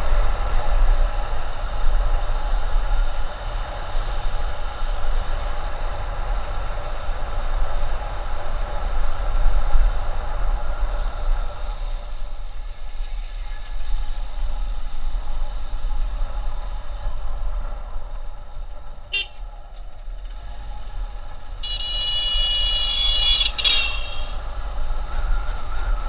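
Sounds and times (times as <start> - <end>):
motorcycle rumble: 0.0 - 26.0
vehicle horn: 19.1 - 19.4, 21.6 - 24.4.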